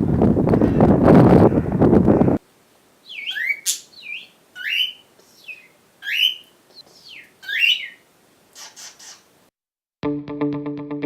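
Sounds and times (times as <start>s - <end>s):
bird chirping: 3.0s - 9.3s.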